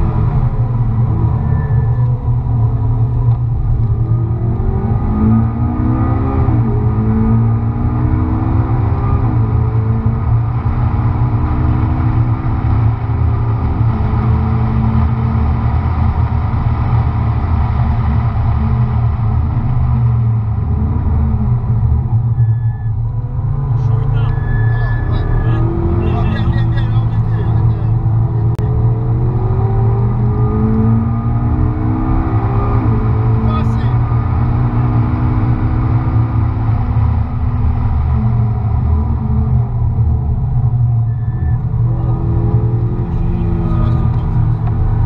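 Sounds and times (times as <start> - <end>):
car engine accelerating: 0.0 - 45.0
road noise: 0.0 - 45.0
gear upshifts: 21.0 - 31.8.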